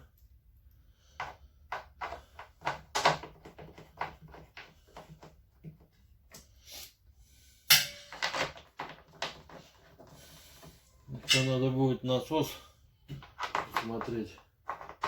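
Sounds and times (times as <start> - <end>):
parts clattering: 7.7 - 11.8, 13.0 - 15.0.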